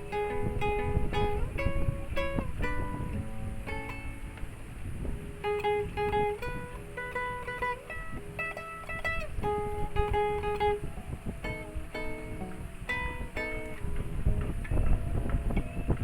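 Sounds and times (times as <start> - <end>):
fingerstyle acoustic guitar melody: 0.0 - 16.0.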